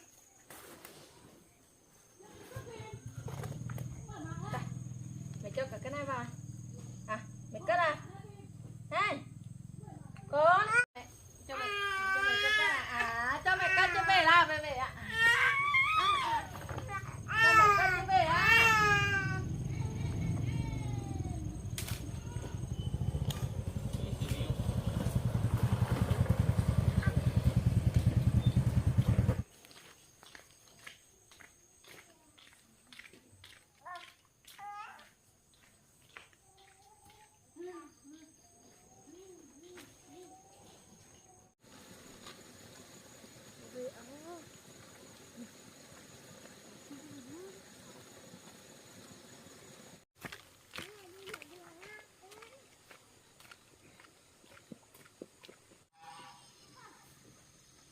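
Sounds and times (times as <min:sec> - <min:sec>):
small engine running: 0:18.8 - 0:29.5.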